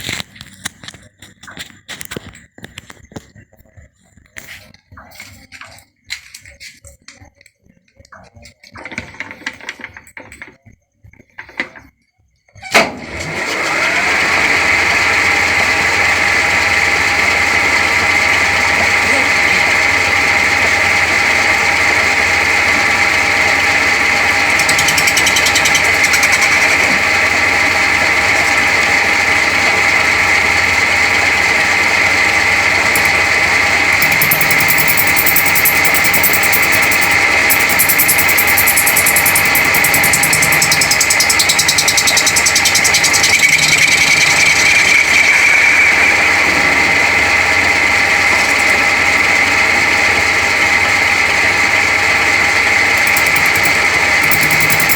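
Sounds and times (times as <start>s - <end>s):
machine tool whining: 12.8s - 54.9s.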